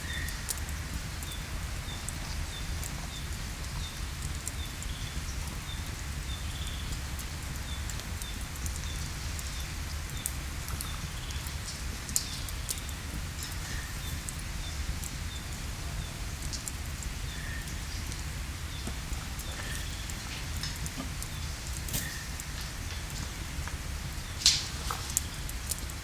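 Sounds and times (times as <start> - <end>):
sharp crackles: 19.7 - 26.0.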